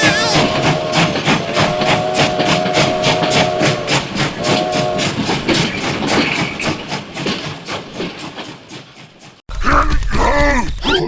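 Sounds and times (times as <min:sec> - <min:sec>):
train whistle blast: 0:00.0 - 0:05.2
steam train chuffing: 0:00.0 - 0:09.4.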